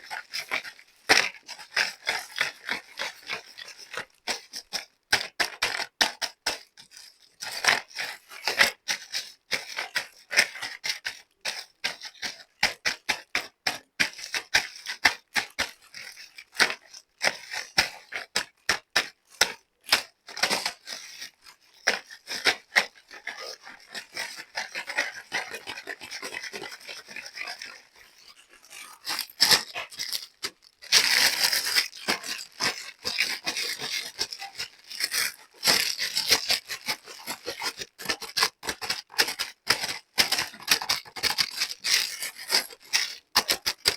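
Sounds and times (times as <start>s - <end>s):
dense plastic crinkling: 27.6s - 36.8s.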